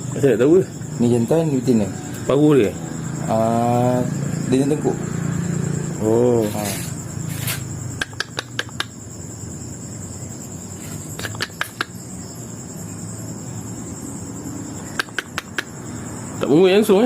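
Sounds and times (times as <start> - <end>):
high-pitched insect whine: 0.0 - 17.0
parrots chirping: 5.7 - 13.0.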